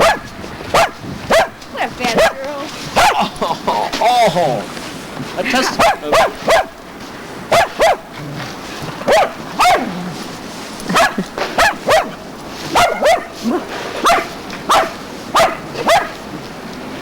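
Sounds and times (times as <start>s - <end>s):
dog barking: 0.0s - 3.3s, 5.6s - 6.8s, 7.5s - 8.1s, 9.0s - 10.1s, 10.9s - 16.2s.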